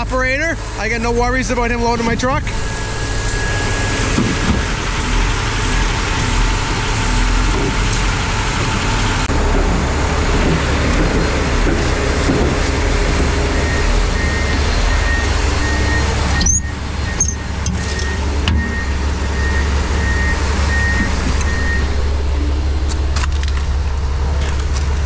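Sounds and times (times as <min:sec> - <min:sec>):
heavy diesel engine running: 0:00.0 - 0:25.0
reversing alarm beeping: 0:02.5 - 0:07.6, 0:09.9 - 0:22.5.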